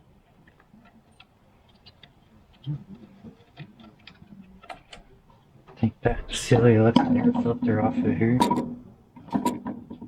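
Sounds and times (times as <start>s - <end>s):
clicks and light knocks: 0.2s - 7.5s.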